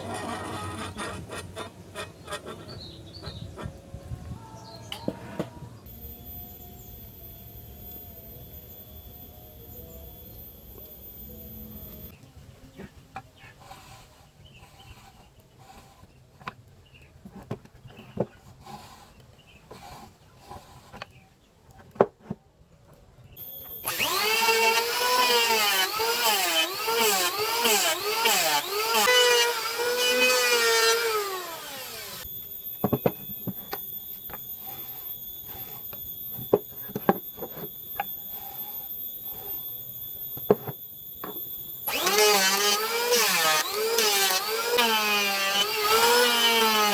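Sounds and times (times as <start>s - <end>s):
power tool motor whining: 23.4s - 46.9s.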